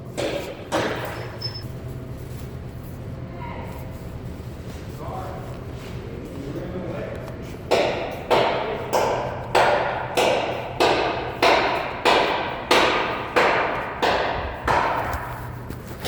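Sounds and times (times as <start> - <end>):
heavy knocks: 7.7 - 15.5.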